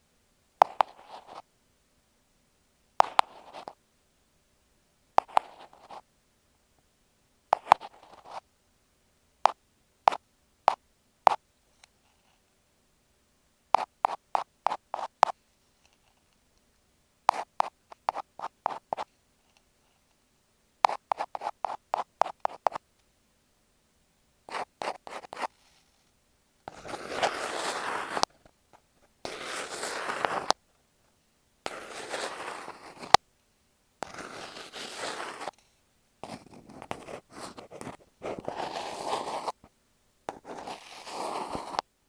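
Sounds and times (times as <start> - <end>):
ear pick scratching microphone: 13.8 - 15.4, 17.3 - 19.1, 20.9 - 22.8, 24.5 - 25.5, 26.7 - 28.3, 29.2 - 30.6, 31.7 - 33.2, 34.0 - 35.5, 36.2 - 39.7, 40.3 - 41.9.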